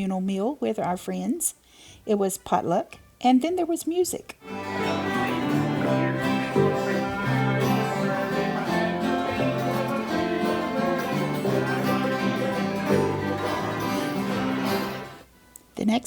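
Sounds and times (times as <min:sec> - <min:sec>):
acoustic bluegrass music: 0:04.4 - 0:15.3.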